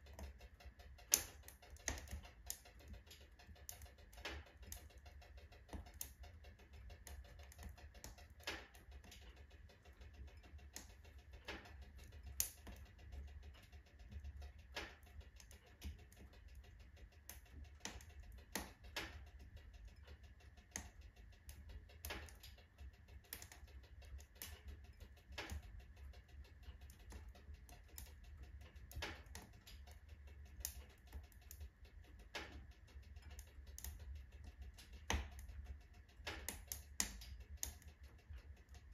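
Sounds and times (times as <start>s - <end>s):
low steady rumble: 0.0s - 38.9s
firewood crackling and popping: 1.0s - 2.7s, 10.8s - 12.8s, 16.6s - 19.3s, 23.3s - 23.6s, 34.7s - 37.9s.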